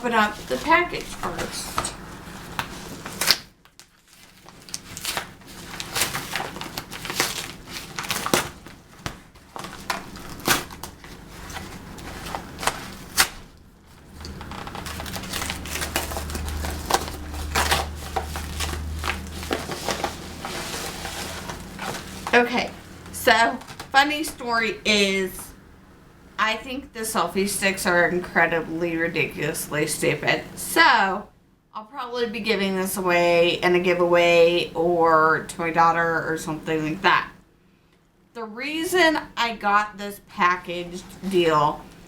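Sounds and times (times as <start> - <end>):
plastic packaging crinkling: 0.0 - 24.0.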